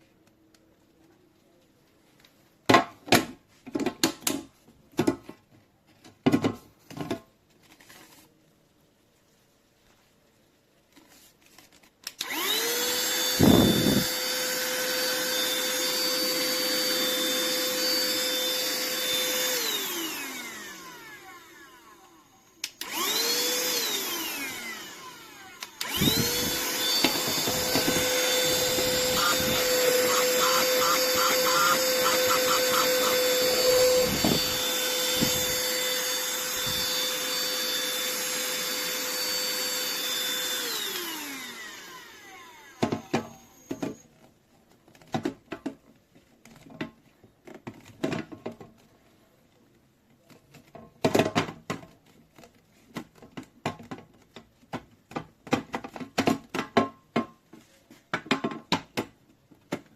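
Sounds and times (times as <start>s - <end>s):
handheld vacuum cleaner whining: 12.2s - 44.1s.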